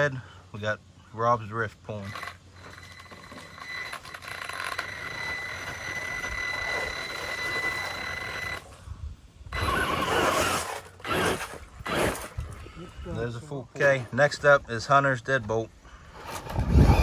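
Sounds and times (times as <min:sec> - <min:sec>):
electric motor whining: 0:02.1 - 0:08.8, 0:09.5 - 0:12.6, 0:16.1 - 0:17.0.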